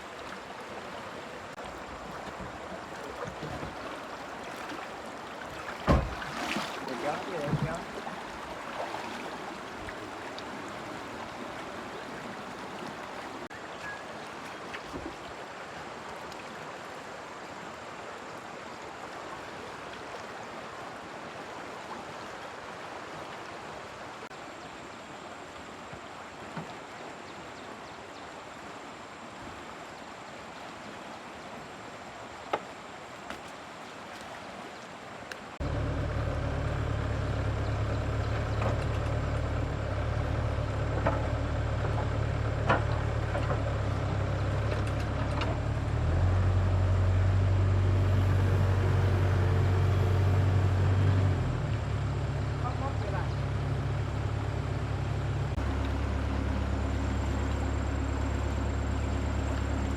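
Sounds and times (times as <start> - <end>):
flowing water rushing: 0.0 - 59.9
engine idling: 35.6 - 59.9.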